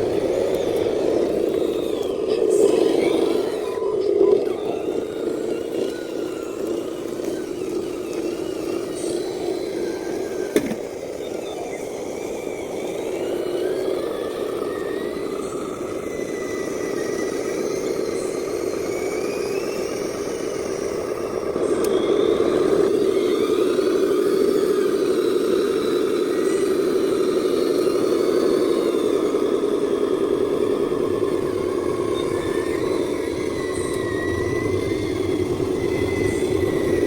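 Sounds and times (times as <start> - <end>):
toy truck drive-train whir: 0.0 - 37.0.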